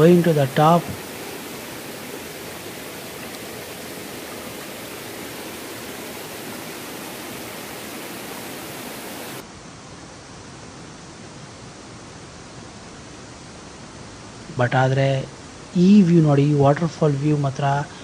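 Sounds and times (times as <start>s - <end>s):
waterfall rushing: 0.0s - 9.4s.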